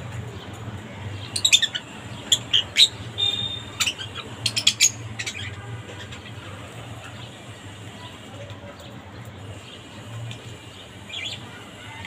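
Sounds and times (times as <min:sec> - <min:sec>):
bird chirping: 0:01.2 - 0:06.4.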